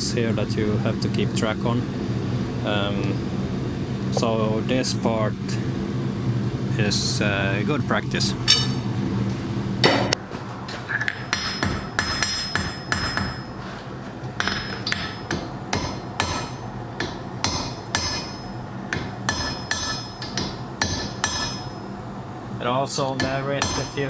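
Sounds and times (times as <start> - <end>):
low hum: 0.0 - 24.0
hammer striking iron on anvil: 8.4 - 8.9, 9.8 - 10.2, 11.1 - 13.7, 14.4 - 21.8, 23.1 - 24.0.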